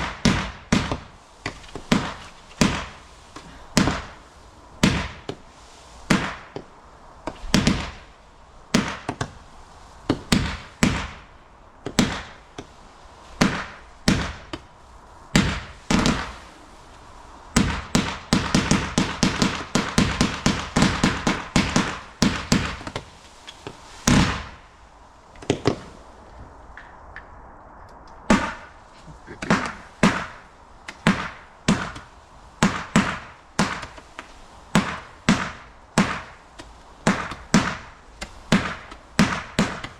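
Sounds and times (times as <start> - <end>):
rapid-fire firework shots: 0.0 - 3.1, 3.7 - 5.4, 6.0 - 6.6, 7.3 - 9.4, 10.1 - 12.6, 13.3 - 14.7, 15.3 - 16.6, 17.5 - 23.1, 23.7 - 24.7, 28.2 - 39.9
fireworks bangs: 0.0 - 9.4, 10.0 - 16.6, 17.2 - 24.8, 25.4 - 27.4, 28.2 - 39.9.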